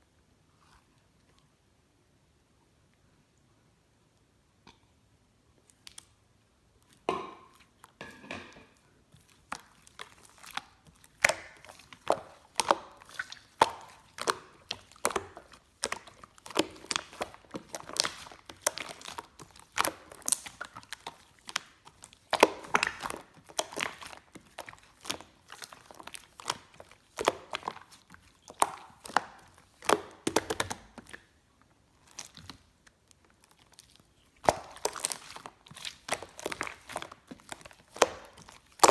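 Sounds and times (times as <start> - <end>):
slime squished by hand: 9.1 - 38.9.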